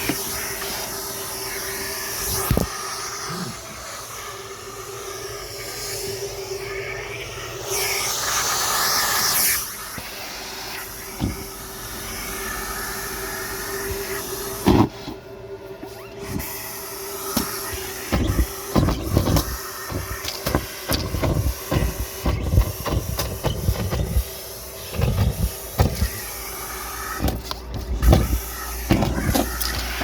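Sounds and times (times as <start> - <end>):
vacuum hiss and hum: 0.0 - 30.0
debris rattling in hose: 17.3 - 30.0.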